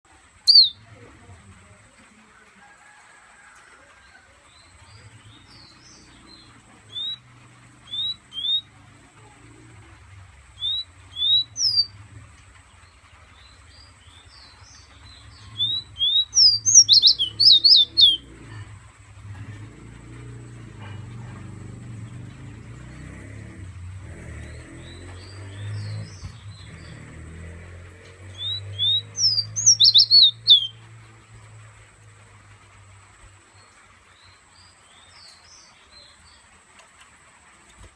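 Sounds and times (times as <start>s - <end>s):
songbird whistling: 0.4s - 0.8s, 6.9s - 7.2s, 7.8s - 8.7s, 10.6s - 11.9s, 15.5s - 18.2s, 28.4s - 30.8s.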